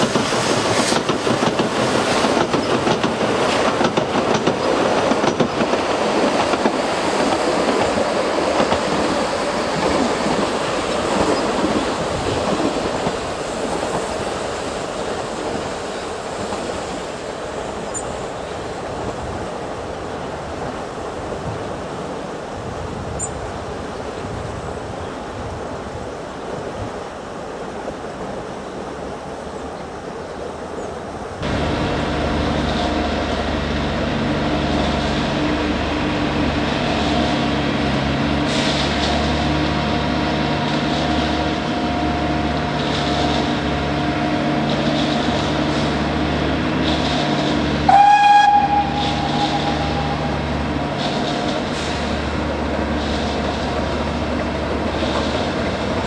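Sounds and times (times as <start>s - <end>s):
wind rumbling on microphone: 0.0s - 15.7s, 18.6s - 28.4s
steam train clattering: 0.0s - 21.7s, 31.4s - 56.0s
steam whistle blast: 47.9s - 50.5s.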